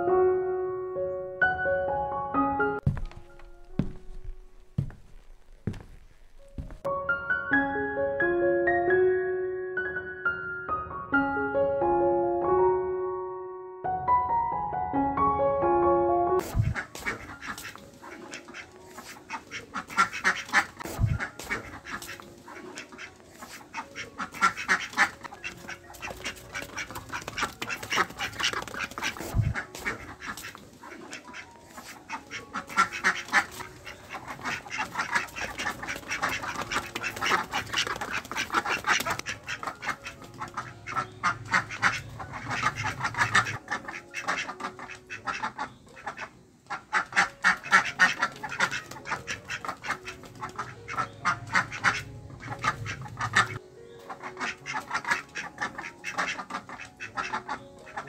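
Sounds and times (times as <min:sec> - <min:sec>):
ducks quacking: 0:16.4 - 0:58.0.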